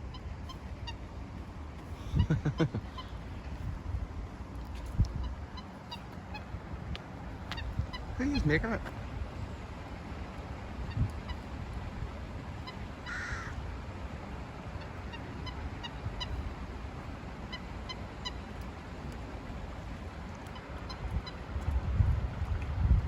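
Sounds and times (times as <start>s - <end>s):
wind rumbling on microphone: 0.0s - 17.3s, 18.8s - 23.0s
bird giving harsh calls: 13.1s - 13.5s.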